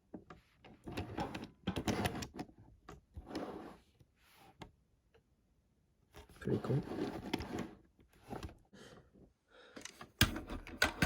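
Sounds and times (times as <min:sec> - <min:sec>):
plastic toys clicking and knocking: 0:09.8 - 0:11.0.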